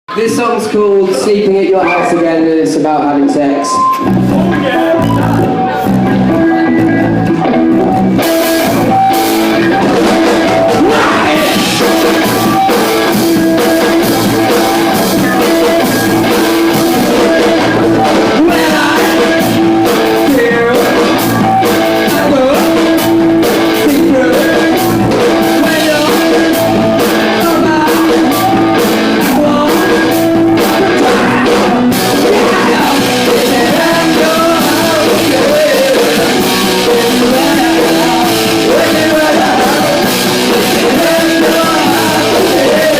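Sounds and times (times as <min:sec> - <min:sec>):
electric guitar: 0:00.2 - 0:42.9
drum kit: 0:07.2 - 0:42.9
person singing: 0:10.7 - 0:12.0, 0:23.8 - 0:42.9.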